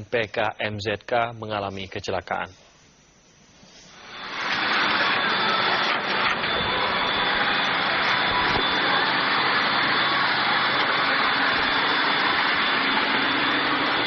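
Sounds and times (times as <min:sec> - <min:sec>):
thin high whine: 0:00.0 - 0:14.0
airplane cabin engine noise: 0:03.9 - 0:14.0.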